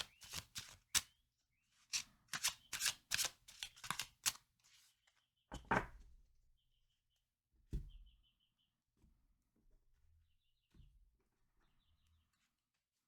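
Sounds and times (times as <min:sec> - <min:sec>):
cards being shuffled by hand: 0:00.0 - 0:01.1, 0:01.9 - 0:04.4
faint bird chirps: 0:07.8 - 0:08.8.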